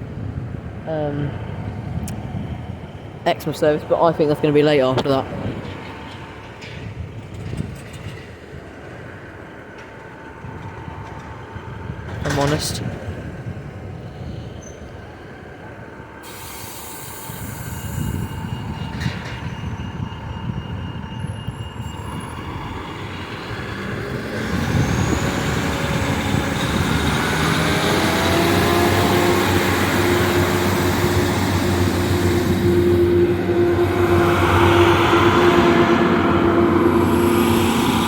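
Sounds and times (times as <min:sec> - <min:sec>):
diesel train approaching: 0:00.0 - 0:38.0.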